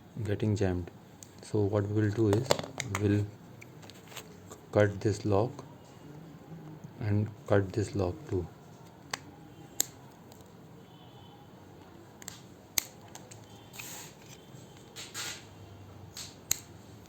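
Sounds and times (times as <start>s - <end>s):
cutting tool snipping plastic: 12.2s - 15.4s.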